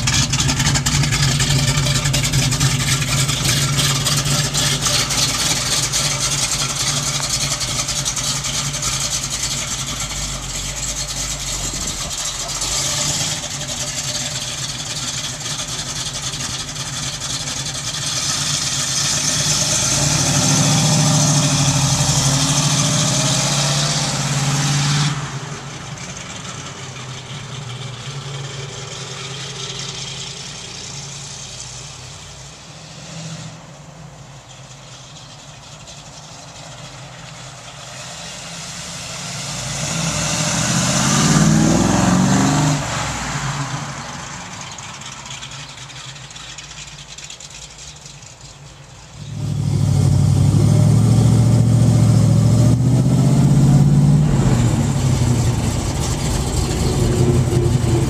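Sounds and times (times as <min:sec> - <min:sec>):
car engine driving past: 0:49.1 - 0:58.0.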